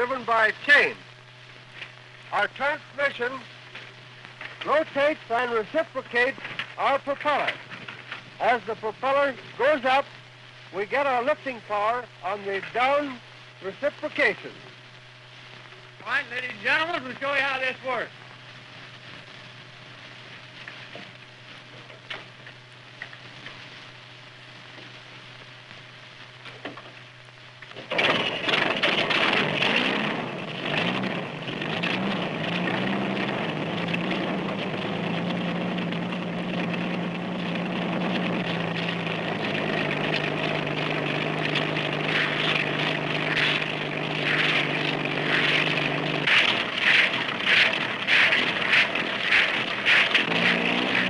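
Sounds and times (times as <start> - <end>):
faint steady hum: 0.0 - 51.0
small engine running: 27.9 - 51.0.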